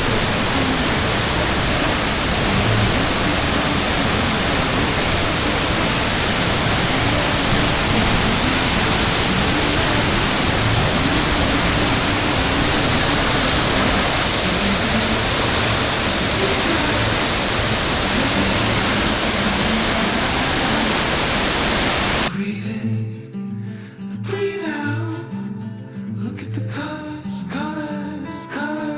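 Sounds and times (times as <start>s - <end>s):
waterfall rushing: 0.0s - 22.3s
music: 0.0s - 28.9s.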